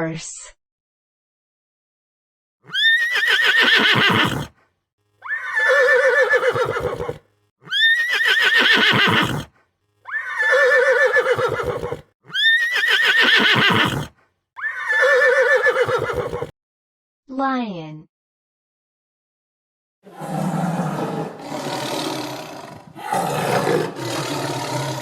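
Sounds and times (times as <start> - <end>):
horse neighing: 2.7 - 4.5, 5.2 - 9.5, 10.1 - 16.5, 20.1 - 25.0.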